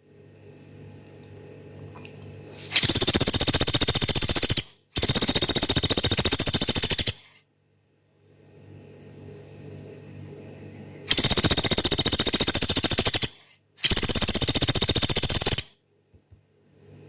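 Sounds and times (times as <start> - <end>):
woodpecker rattling trills: 2.8 - 7.2, 11.1 - 15.7.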